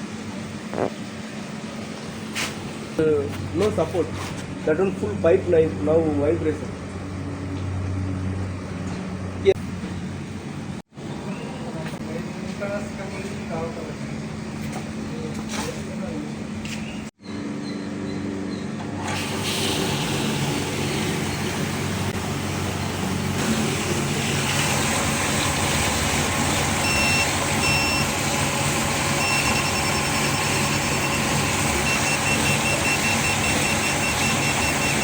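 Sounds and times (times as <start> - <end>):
glasswasher humming and rushing: 18.7 - 35.0
high electronic beep: 29.2 - 35.0.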